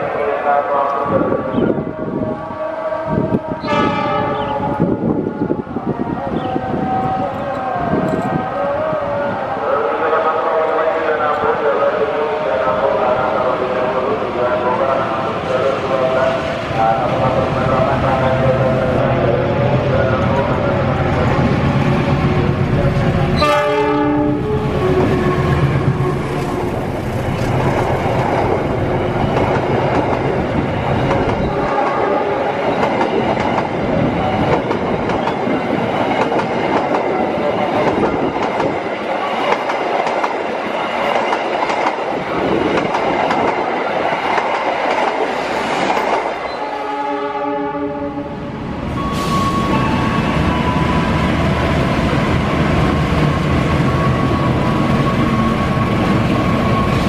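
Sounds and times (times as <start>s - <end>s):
train horn blast: 2.0s - 5.3s, 22.8s - 26.9s, 31.4s - 32.5s, 46.5s - 48.4s
train wheels on rails: 20.2s - 46.8s, 48.9s - 57.0s.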